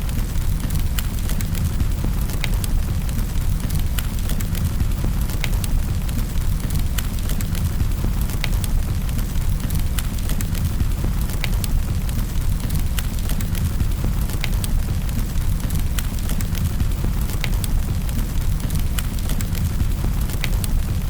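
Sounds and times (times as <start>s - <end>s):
fire pops and snaps: 0.0s - 21.0s
wood fire rumbling: 0.0s - 21.0s.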